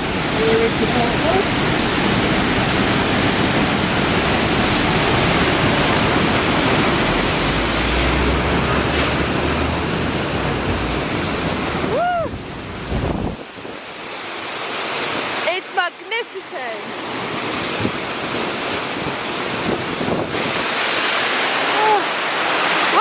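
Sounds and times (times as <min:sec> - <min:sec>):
wind buffeting microphone: 0:00.0 - 0:14.0, 0:17.0 - 0:21.4
waterfall rushing: 0:00.0 - 0:23.0.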